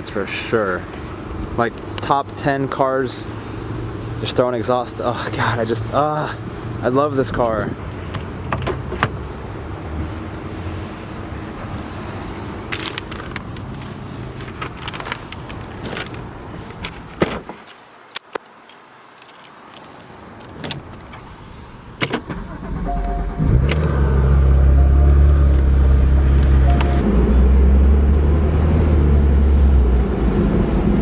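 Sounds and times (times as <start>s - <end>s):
car engine starting and idling: 21.8s - 31.0s
keys and controls clicking: 22.8s - 27.0s.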